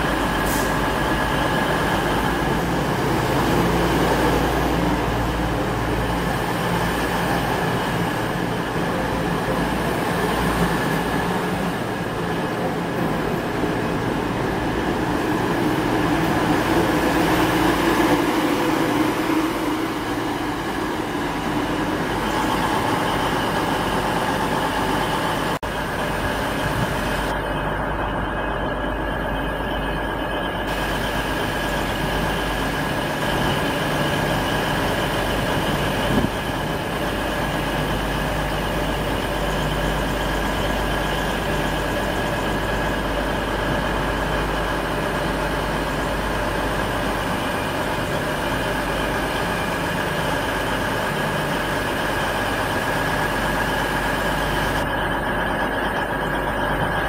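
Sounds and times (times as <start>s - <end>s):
diesel train passing: 0.0s - 57.0s
trains rumbling: 0.0s - 57.0s.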